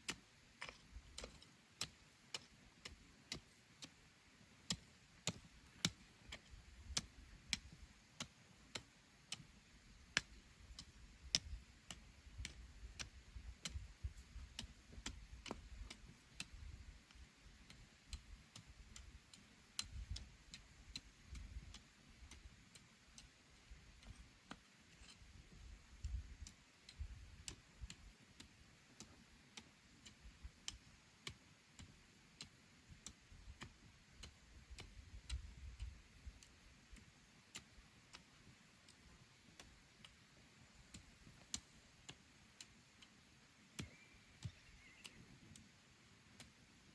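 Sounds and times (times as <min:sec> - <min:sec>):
faint sharp ticks: 0:26.0 - 0:43.2, 0:43.8 - 0:45.7.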